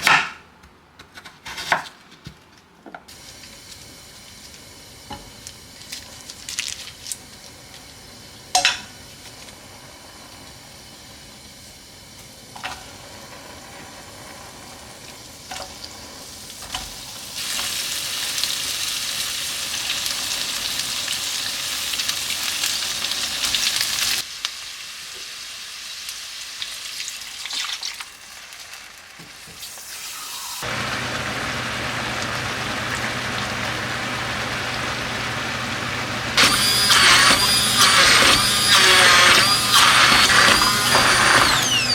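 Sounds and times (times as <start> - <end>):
food sizzling in a pan: 3.1 - 41.9
small electric motor running: 36.4 - 41.9.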